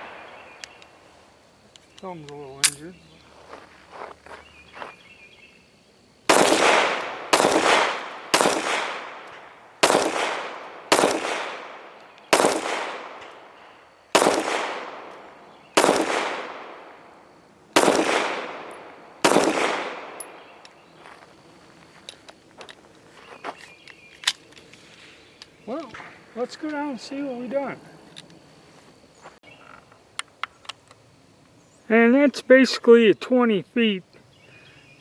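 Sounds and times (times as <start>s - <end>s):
pistol shots with echo: 6.3s - 13.5s, 14.1s - 17.1s, 17.8s - 20.5s.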